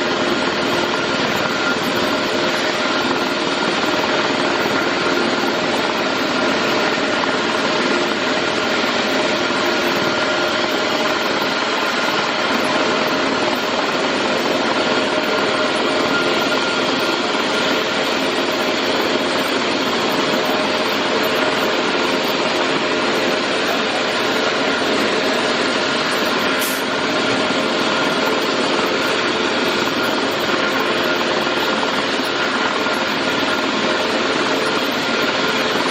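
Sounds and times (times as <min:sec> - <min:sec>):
helicopter engine and rotor: 0:00.0 - 0:35.9.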